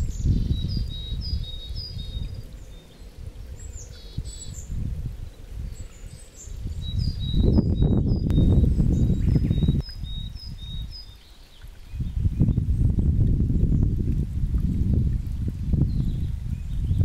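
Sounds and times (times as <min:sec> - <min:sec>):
small birds chirping: 0:00.0 - 0:13.0
low uneven rumble: 0:00.0 - 0:17.0.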